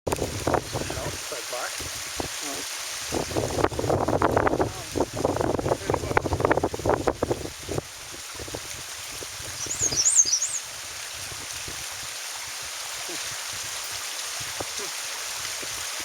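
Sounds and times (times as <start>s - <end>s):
songbird singing: 9.5s - 10.7s.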